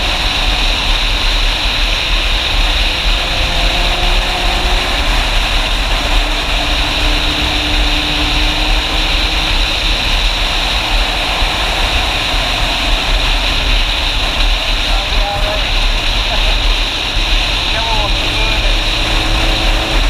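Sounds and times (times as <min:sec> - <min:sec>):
motorcycle engine running: 0:00.0 - 0:20.0
wind noise on microphone: 0:00.0 - 0:20.0.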